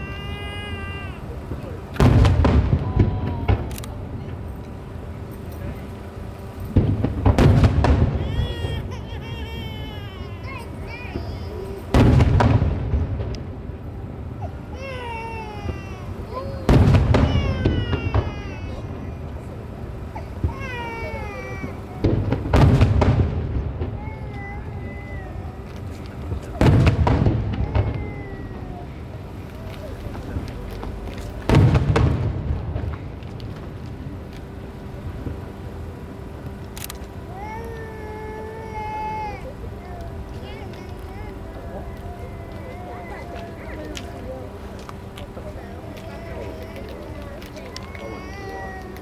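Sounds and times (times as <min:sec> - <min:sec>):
fireworks rumbling and crackling: 0:00.0 - 0:49.0
fireworks booms: 0:01.3 - 0:05.0, 0:06.7 - 0:10.0, 0:11.1 - 0:14.4, 0:15.2 - 0:36.5.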